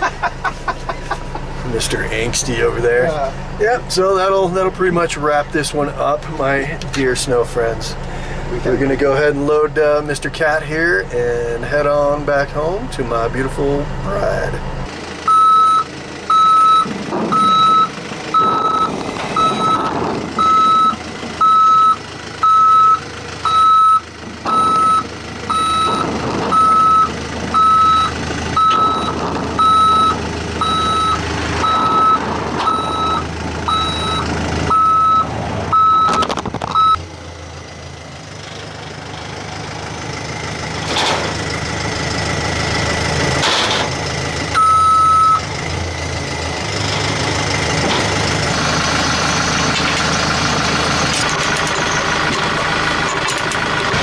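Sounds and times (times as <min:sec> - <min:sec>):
engine running: 0:00.0 - 0:54.0
backup alarm beeping: 0:15.3 - 0:37.0, 0:44.6 - 0:45.4.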